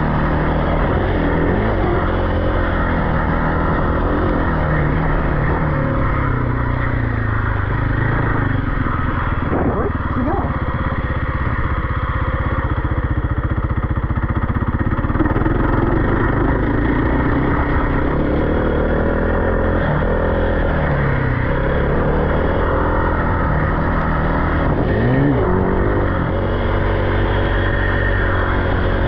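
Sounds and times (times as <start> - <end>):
vehicle engine revving: 0.0 - 29.0.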